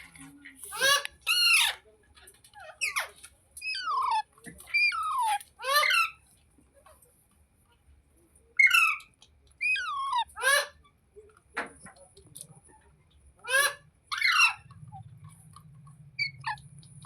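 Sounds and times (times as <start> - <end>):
parakeet harsh calls: 0.7 - 1.8, 2.6 - 6.2, 8.6 - 10.9, 13.4 - 15.2, 16.1 - 17.0.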